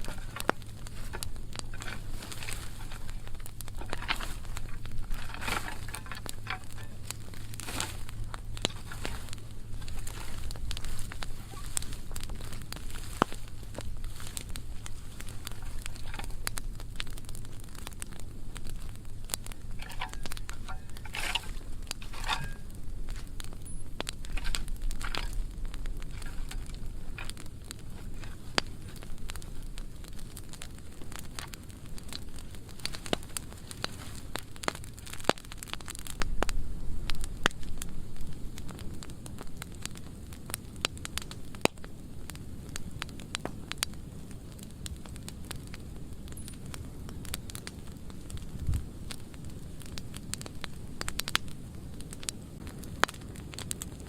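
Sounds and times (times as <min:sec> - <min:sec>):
low rumbles: 0:00.0 - 0:39.8
burning wood crackling: 0:00.0 - 0:54.0
fire pops and snaps: 0:00.0 - 0:54.0.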